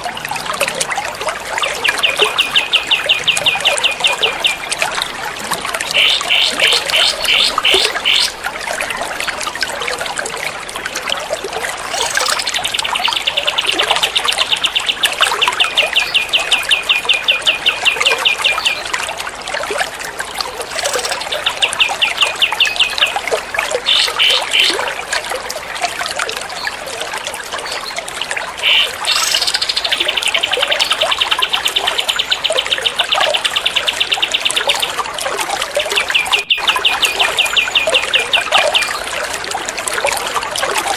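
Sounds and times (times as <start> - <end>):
water trickling: 0.0 - 40.9
songbird rapid repeated notes: 5.9 - 8.4, 35.7 - 38.9.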